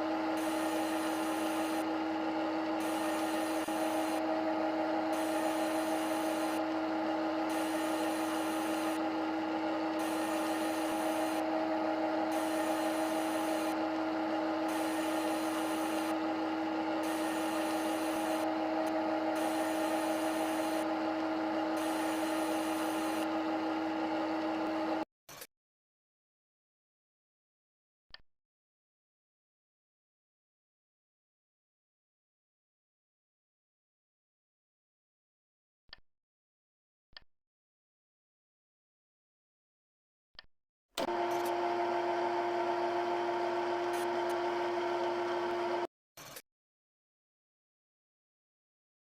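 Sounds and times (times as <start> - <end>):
machine motor whining: 0.1 - 25.0, 41.0 - 45.9.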